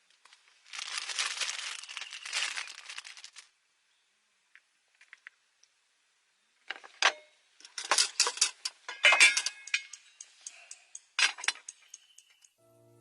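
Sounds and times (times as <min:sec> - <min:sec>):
hard objects clicking and clinking: 0:06.7 - 0:12.6.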